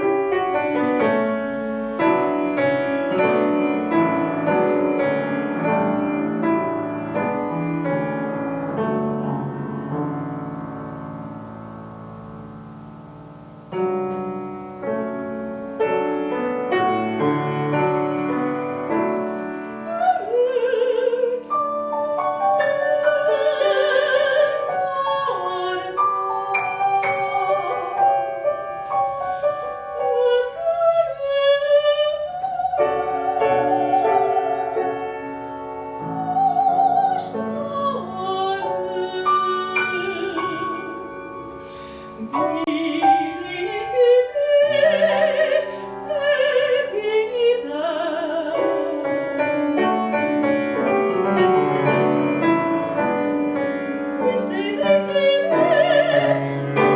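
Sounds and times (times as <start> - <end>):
piano accompaniment: 0.0 - 56.9
soprano singing with vibrato: 16.0 - 50.2, 53.1 - 56.9.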